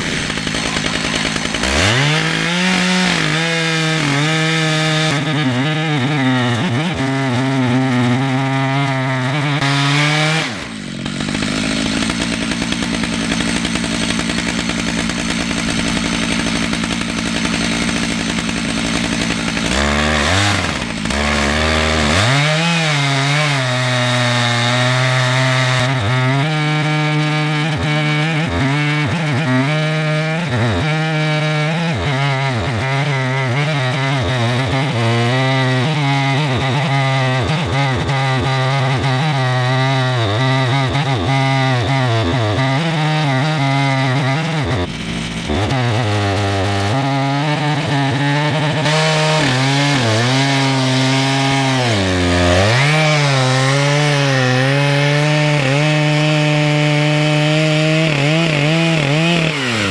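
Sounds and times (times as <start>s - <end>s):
chainsaw cutting log: 0.0s - 59.9s.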